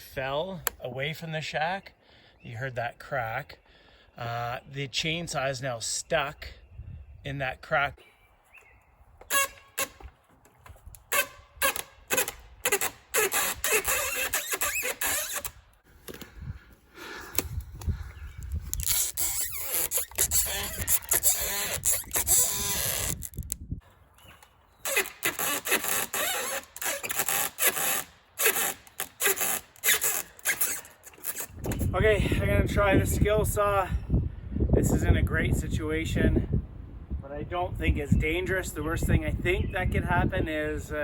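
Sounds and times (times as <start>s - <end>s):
wood and metal scraping: 9.2s - 16.3s, 18.5s - 23.6s, 24.2s - 31.9s.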